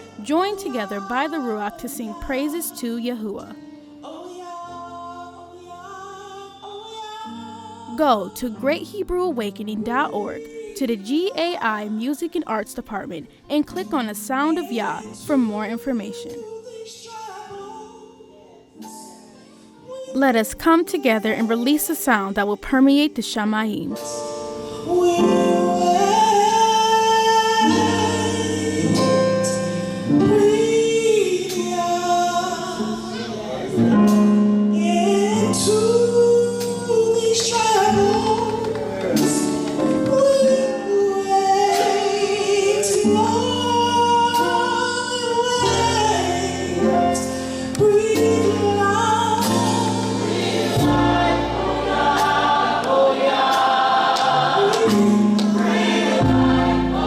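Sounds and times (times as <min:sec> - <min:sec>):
choir singing with instruments: 0:24.0 - 0:57.0.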